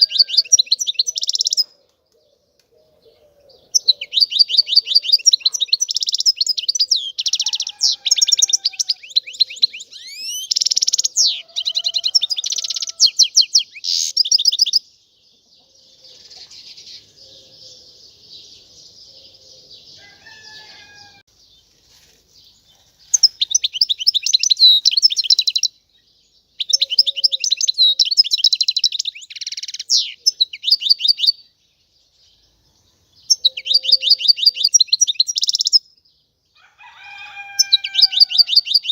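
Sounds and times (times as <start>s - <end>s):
finch twittering trills: 26.6s - 31.4s.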